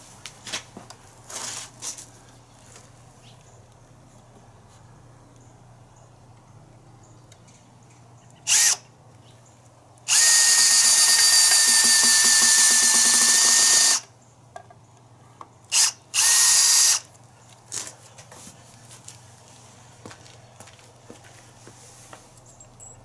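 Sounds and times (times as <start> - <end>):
power drill whining: 8.5 - 8.8, 10.1 - 14.1, 15.7 - 17.1.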